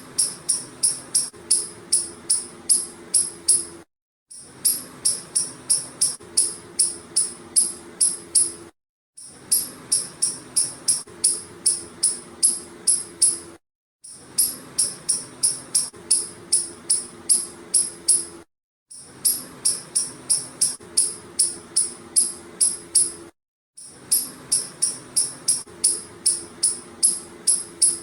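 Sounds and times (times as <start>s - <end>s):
squirrel chirping: 0.2s - 3.6s, 24.1s - 28.0s.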